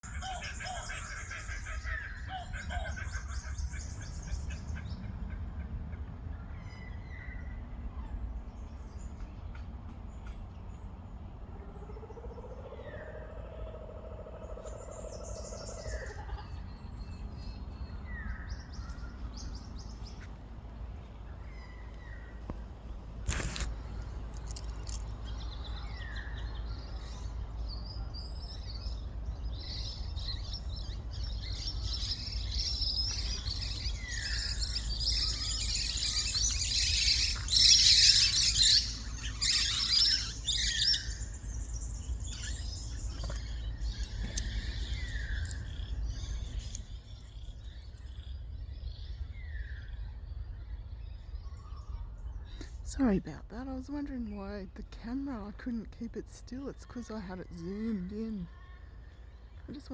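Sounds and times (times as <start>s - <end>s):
kookaburras laughing: 0.1s - 4.7s
flock of parrots screeching: 34.1s - 41.2s.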